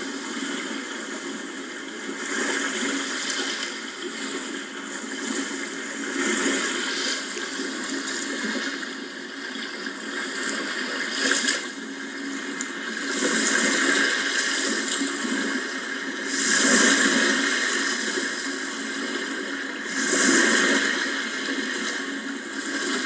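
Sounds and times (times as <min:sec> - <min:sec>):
sea waves washing in: 0:12.4 - 0:23.0.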